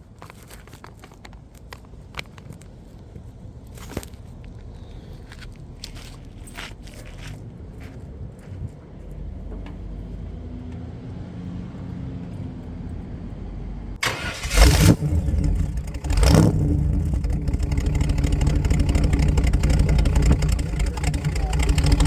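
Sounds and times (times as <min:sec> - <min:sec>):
truck engine revving: 0:14.0 - 0:22.0.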